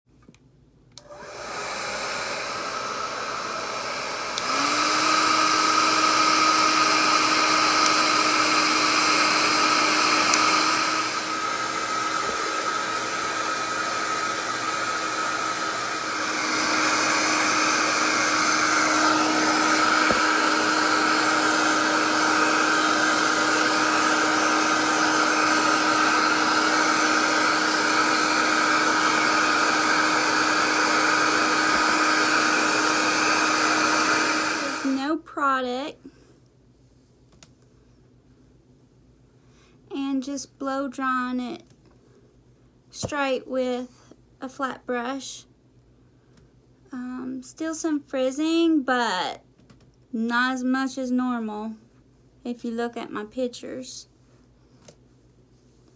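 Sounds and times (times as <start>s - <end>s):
hair dryer blowing: 1.0s - 35.2s.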